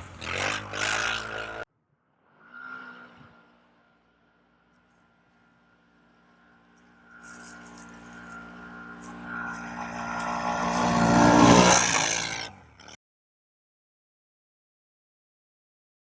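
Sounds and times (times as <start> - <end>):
atv engine: 0.0 - 1.7, 4.8 - 13.0.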